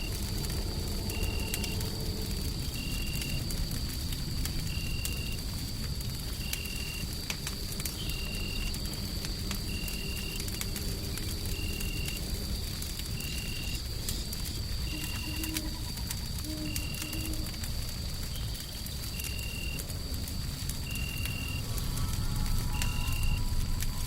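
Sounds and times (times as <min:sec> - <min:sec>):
low rumbling white noise: 0:00.0 - 0:24.0
wood fire crackling: 0:00.0 - 0:24.0
faint high whine: 0:20.9 - 0:24.0.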